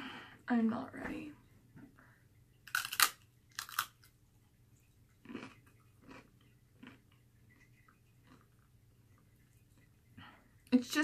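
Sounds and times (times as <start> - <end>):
crunching fried pork rind: 2.6 - 4.1, 5.2 - 7.1
chewing: 4.8 - 10.1.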